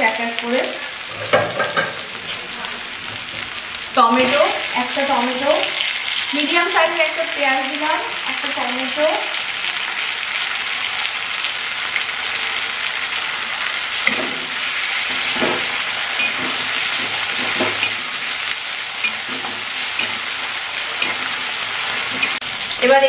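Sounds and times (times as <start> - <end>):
vegetables sizzling in hot oil: 0.0 - 23.0
metal spatula scraping pan: 1.1 - 3.4, 14.1 - 22.4.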